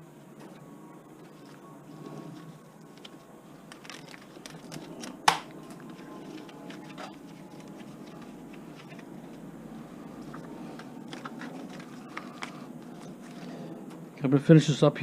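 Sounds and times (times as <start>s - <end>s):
wire crinkling and clicking: 0.4s - 14.0s.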